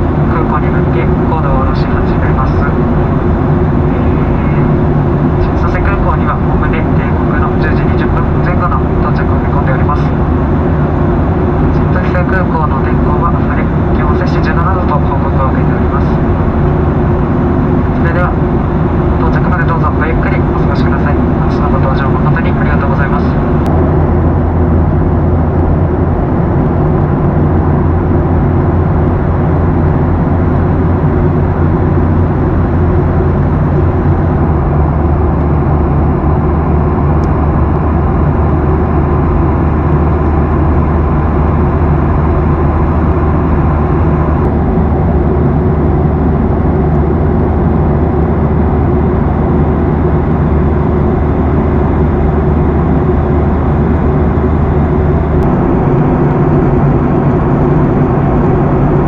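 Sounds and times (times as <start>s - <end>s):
airliner cabin noise: 0.0s - 59.0s.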